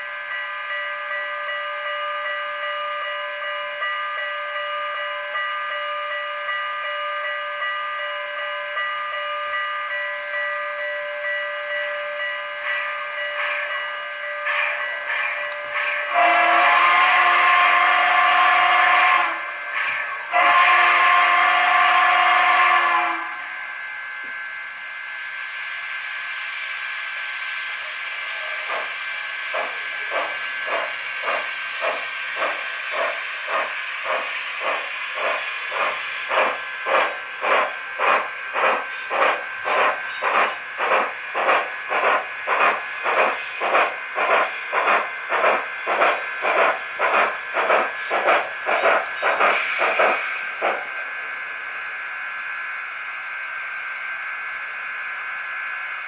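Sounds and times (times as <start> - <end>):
steam locomotive chime whistle: 0.0 - 56.0
steam locomotive exhaust chuffs: 0.0 - 56.0
steam hiss: 25.5 - 51.9.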